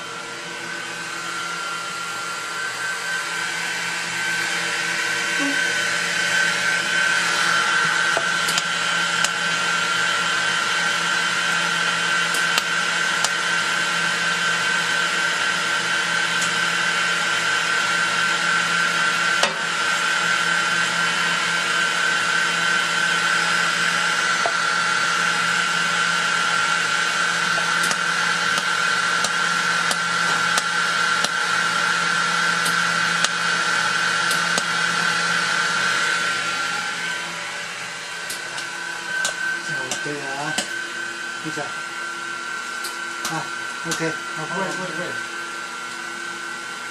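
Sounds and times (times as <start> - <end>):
welding machine whirring: 6.4 - 10.0, 10.6 - 13.5, 23.1 - 36.3.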